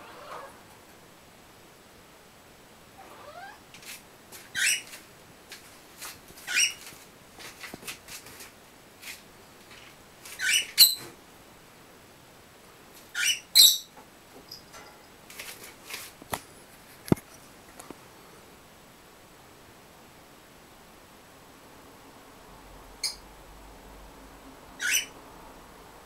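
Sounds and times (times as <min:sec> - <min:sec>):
birds giving shrill calls: 0:04.5 - 0:05.0, 0:06.5 - 0:06.8, 0:10.4 - 0:11.1, 0:13.1 - 0:13.9, 0:24.8 - 0:25.1.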